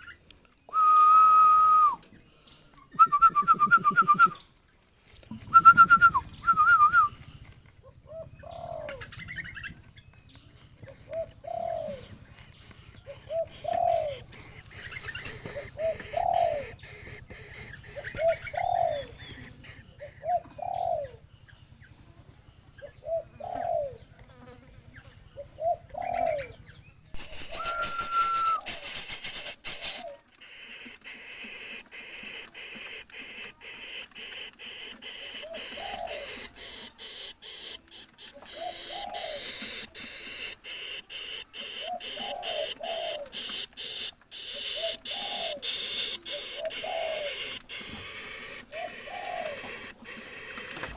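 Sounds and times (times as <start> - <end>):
dove cooing: 3.0 - 4.4, 5.4 - 21.4, 22.6 - 24.2, 25.2 - 50.9
loud hiss with whistle tone: 27.2 - 30.0.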